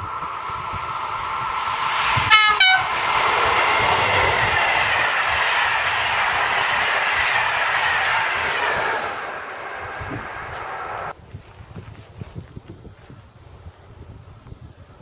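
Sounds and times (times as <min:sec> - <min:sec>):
train running at speed: 0:00.0 - 0:11.2
train horn toots: 0:01.9 - 0:05.4.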